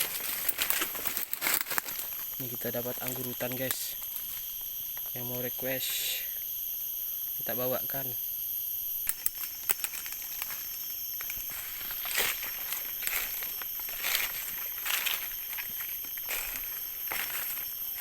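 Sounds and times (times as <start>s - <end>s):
footsteps crunching through leaves: 0.0s - 4.5s, 10.1s - 18.0s
insects droning: 0.0s - 18.0s.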